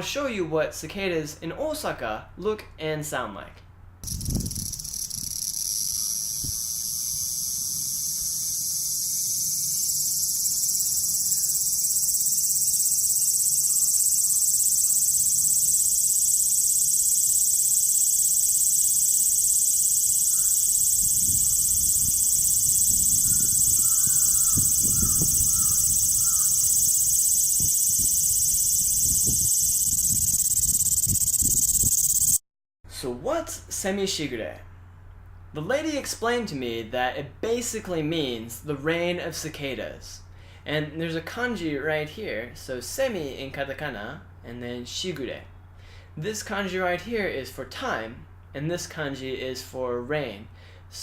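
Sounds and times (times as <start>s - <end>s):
cicadas buzzing: 4.0s - 32.4s.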